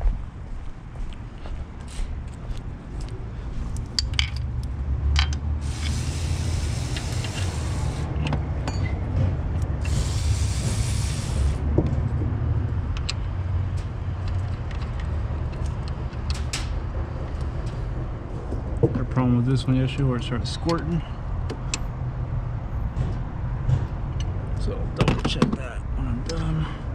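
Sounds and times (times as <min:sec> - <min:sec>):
hissing spray: 0:05.6 - 0:08.1, 0:09.8 - 0:11.6.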